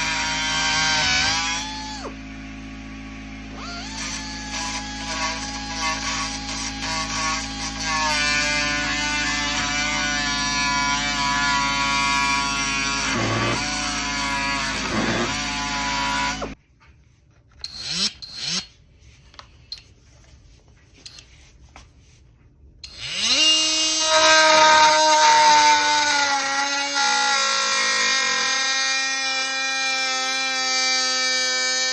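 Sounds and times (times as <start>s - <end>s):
oscillating multi-tool whine: 3.5s - 16.6s, 17.6s - 18.8s.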